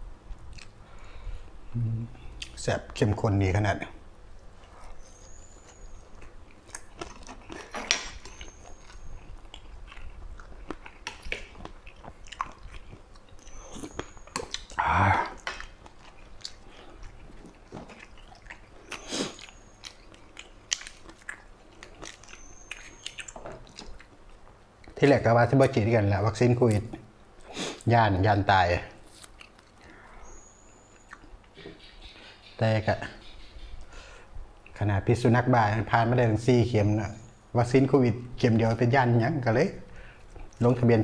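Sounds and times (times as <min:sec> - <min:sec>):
wet chewing mouth sounds: 0:04.6 - 0:25.1
small food crunches: 0:04.7 - 0:25.0, 0:29.0 - 0:29.9.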